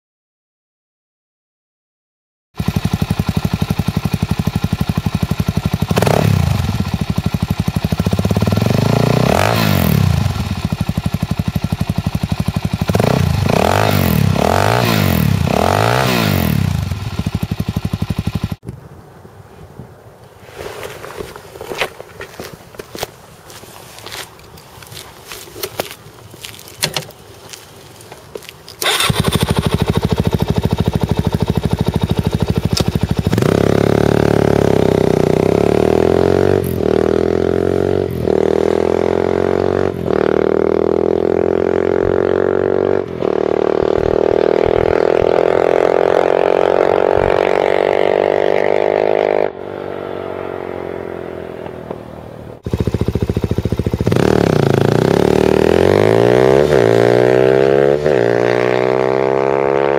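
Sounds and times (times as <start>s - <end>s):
motorcycle engine revving: 2.6s - 18.6s, 28.8s - 59.9s.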